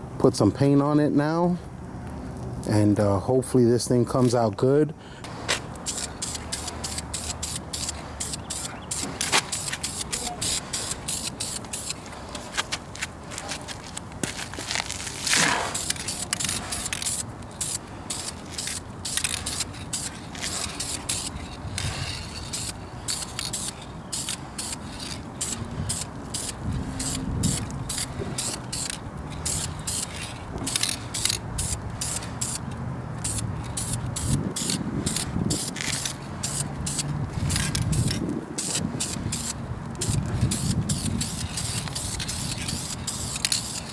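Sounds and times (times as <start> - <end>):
spray-paint can hissing bursts: 5.8 - 12.0, 15.7 - 21.4, 22.5 - 32.6, 33.2 - 43.9.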